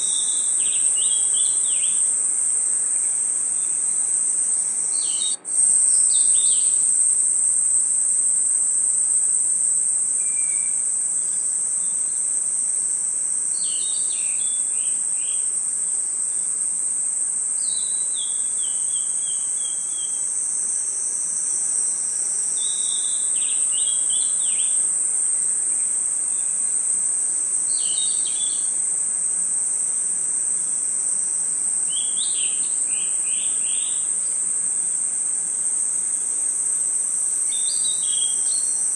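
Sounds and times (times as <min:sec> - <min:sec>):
crickets and insects trilling: 0:00.0 - 0:38.9
bird chirping: 0:04.9 - 0:06.8.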